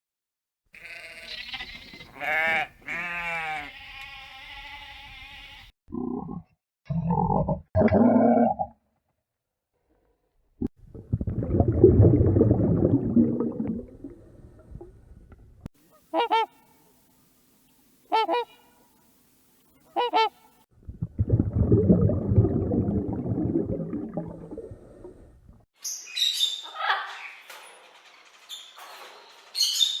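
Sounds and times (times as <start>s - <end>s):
goose honking: 15.9s - 16.6s, 18.1s - 18.8s, 19.8s - 20.5s.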